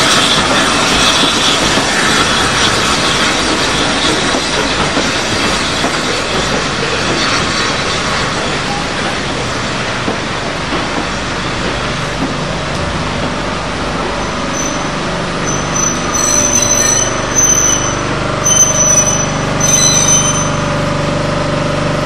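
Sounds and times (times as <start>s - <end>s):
high wheel squeal: 0.0s - 12.2s, 13.8s - 22.0s
train rumbling: 0.0s - 22.0s.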